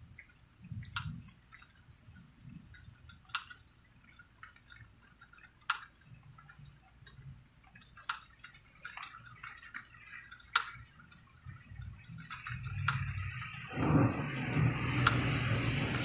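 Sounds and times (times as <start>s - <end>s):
water dripping: 0.0s - 16.0s
soft low rumble: 11.5s - 16.0s.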